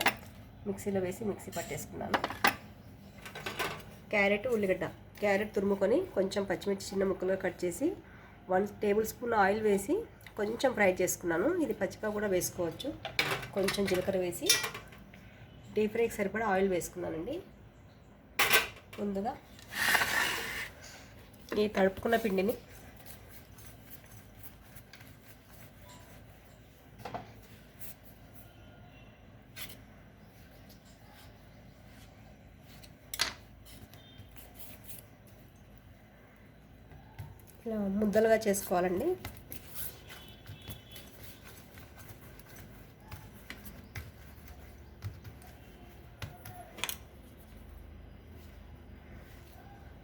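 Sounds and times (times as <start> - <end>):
hands kneading dough: 20.6 - 50.0.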